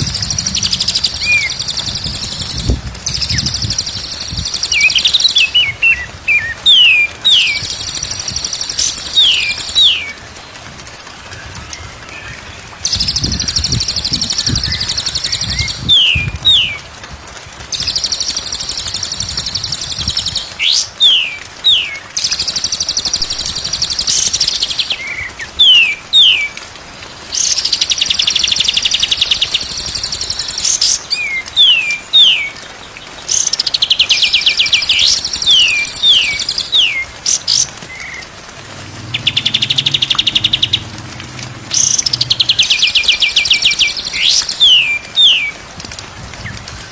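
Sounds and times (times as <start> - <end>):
songbird singing buzzy trills: 0.0 - 10.2, 12.2 - 16.8, 27.4 - 45.6.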